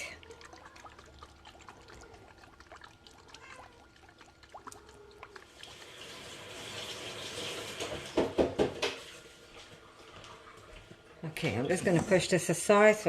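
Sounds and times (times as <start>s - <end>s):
knocks: 8.1s - 9.0s.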